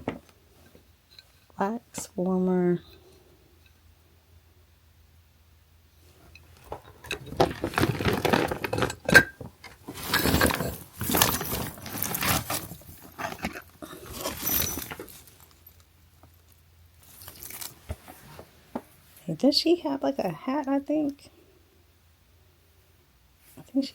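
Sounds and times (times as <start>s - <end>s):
items clattering: 6.2s - 16.4s
bags rustling: 6.6s - 15.8s, 17.0s - 18.6s.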